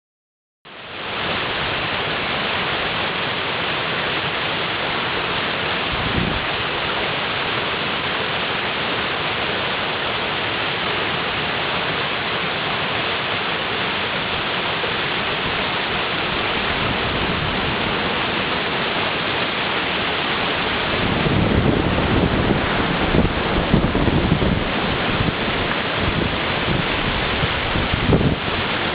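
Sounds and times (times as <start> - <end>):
stream rushing: 0.7 - 28.9
wind buffeting microphone: 5.8 - 6.6, 15.4 - 19.1, 20.4 - 28.9.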